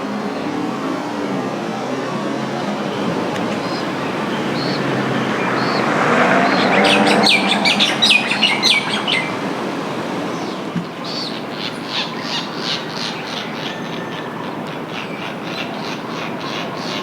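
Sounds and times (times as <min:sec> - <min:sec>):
traffic noise: 0:00.0 - 0:17.0
terns calling: 0:00.1 - 0:17.0.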